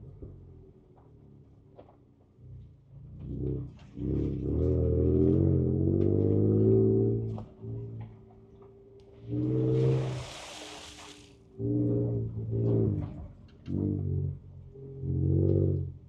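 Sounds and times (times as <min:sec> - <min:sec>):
engine revving from inside cab: 0:03.2 - 0:08.2, 0:09.0 - 0:10.4, 0:11.5 - 0:16.0
hiss: 0:09.6 - 0:11.4.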